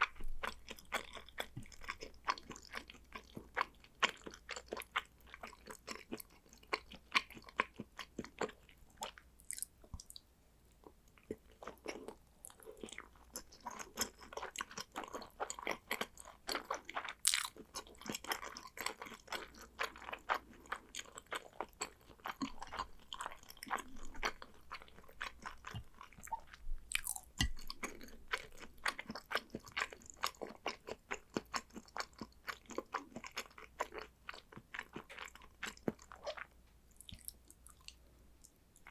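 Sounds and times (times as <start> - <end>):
close chewing mouth clicks: 11.2 - 38.0.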